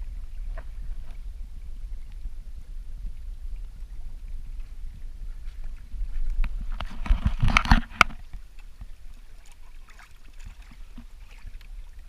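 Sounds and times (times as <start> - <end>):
water sloshing along hull: 0.0 - 12.0
sharp knocks and splashes: 6.3 - 11.7.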